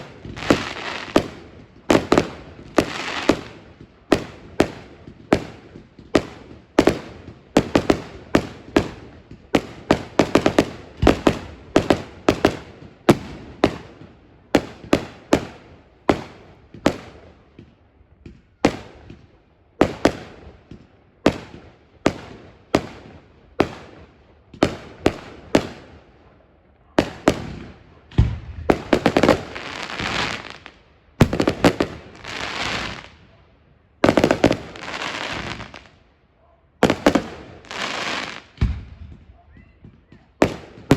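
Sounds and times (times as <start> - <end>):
fireworks banging: 0.0 - 25.9, 27.0 - 33.2, 34.0 - 35.9, 36.8 - 40.9.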